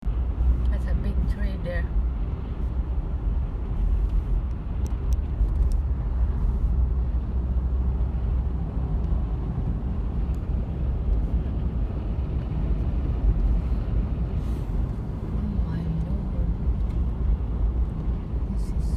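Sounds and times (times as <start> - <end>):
wind buffeting microphone: 0.0 - 18.9.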